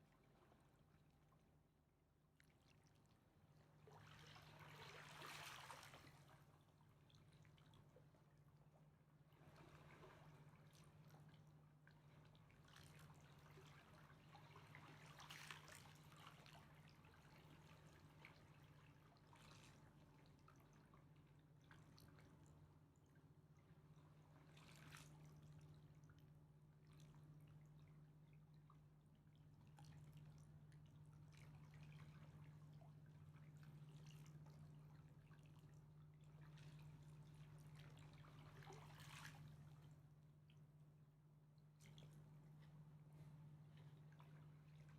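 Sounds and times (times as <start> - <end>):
river water lapping: 3.8 - 6.4, 31.3 - 40.0
water splashes and drips: 3.8 - 6.4, 29.7 - 39.9.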